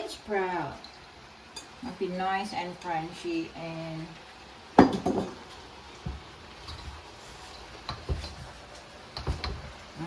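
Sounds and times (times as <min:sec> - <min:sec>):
utensil knocking against a pan: 0:09.2 - 0:09.6.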